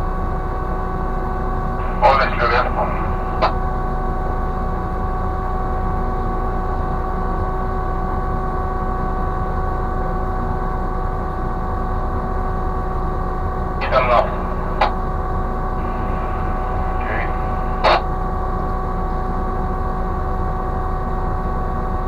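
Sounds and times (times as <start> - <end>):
crane machinery humming: 0.0 - 7.2, 13.0 - 21.3.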